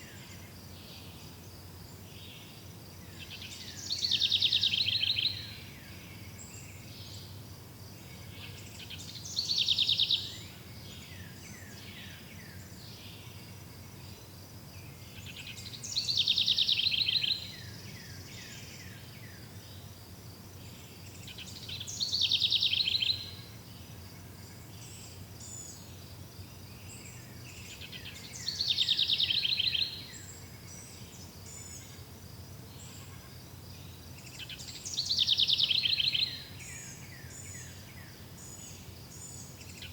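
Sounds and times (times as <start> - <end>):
songbird trilling: 8.8 - 10.4, 21.4 - 23.4, 27.6 - 30.2, 34.3 - 37.8.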